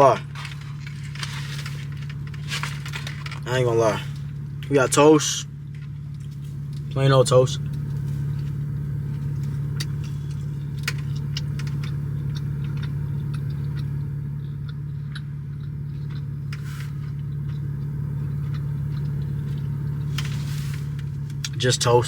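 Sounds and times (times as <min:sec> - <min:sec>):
car engine idling: 0:00.0 - 0:22.0
food packaging rustling: 0:00.2 - 0:03.4.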